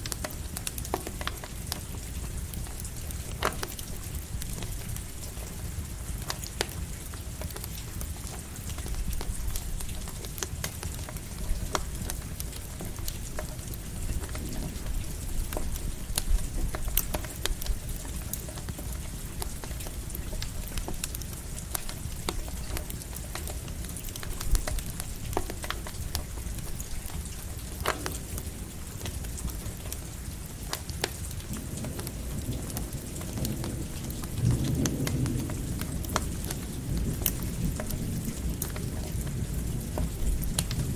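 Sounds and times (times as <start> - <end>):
crackling campfire: 0.0 - 40.9
light rain: 0.0 - 40.9
low rumble of thunder: 8.7 - 23.0, 31.2 - 40.9.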